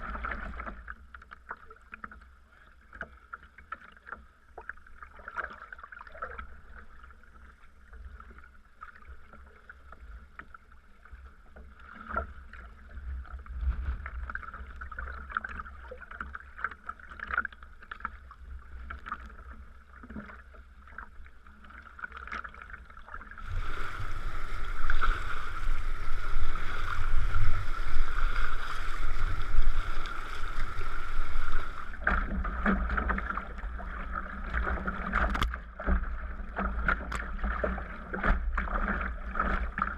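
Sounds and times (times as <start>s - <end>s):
paddle splashes and drips: 0.0s - 39.9s
low wind rumble: 23.4s - 35.2s.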